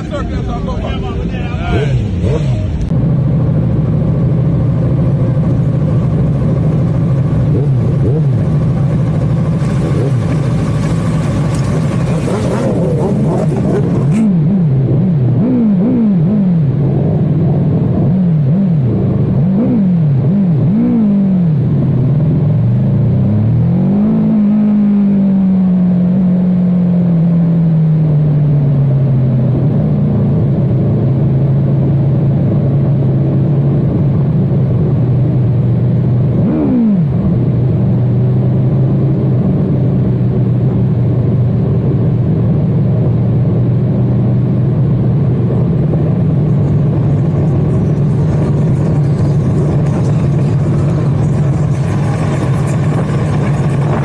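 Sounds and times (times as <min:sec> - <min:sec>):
motorbike engine revving: 0:01.6 - 0:54.0.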